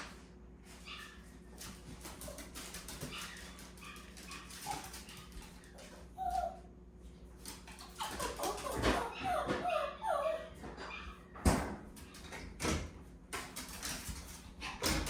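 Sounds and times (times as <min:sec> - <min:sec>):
dog whimpering: 0:06.1 - 0:06.6, 0:08.0 - 0:10.7.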